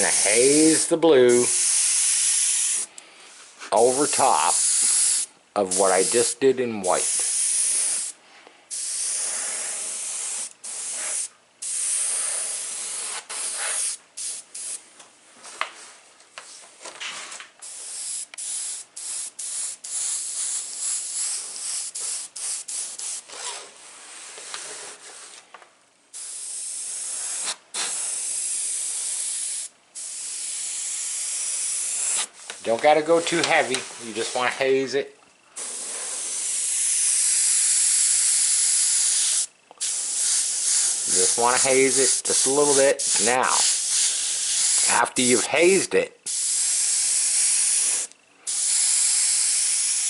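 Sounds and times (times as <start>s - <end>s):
airbrush hissing: 0.0s - 3.0s, 3.8s - 14.8s, 17.6s - 23.3s, 26.1s - 32.6s, 35.6s - 50.0s.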